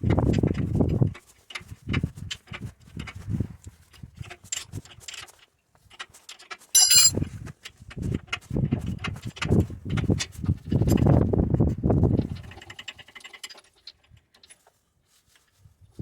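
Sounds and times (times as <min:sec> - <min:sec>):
tools and metal parts clattering: 0:06.8 - 0:07.2.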